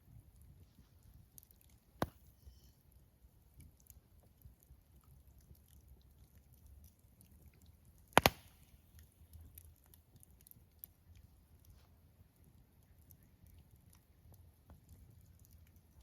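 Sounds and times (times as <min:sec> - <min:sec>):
wood fire crackling: 0:00.0 - 0:16.0
loud sharp pop from fire: 0:08.2 - 0:08.7.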